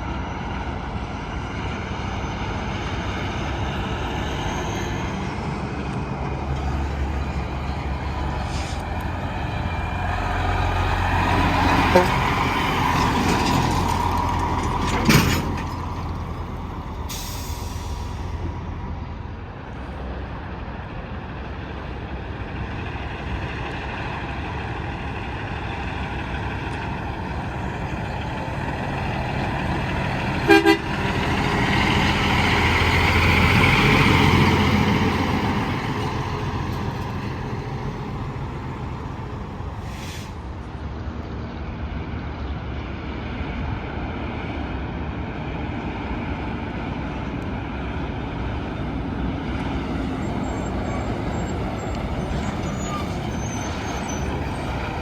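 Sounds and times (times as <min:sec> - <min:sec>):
highway traffic noise: 0:00.0 - 0:55.0
truck passing close: 0:00.0 - 0:55.0
truck horn toots: 0:11.8 - 0:12.3, 0:30.4 - 0:31.1.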